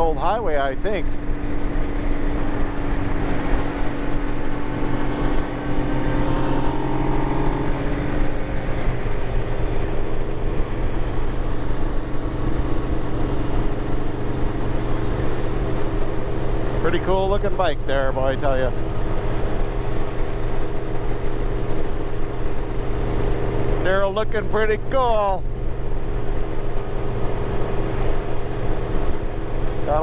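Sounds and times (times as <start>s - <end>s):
motorcycle engine cruising: 0.0s - 30.0s
wind rushing over microphone: 0.9s - 17.3s.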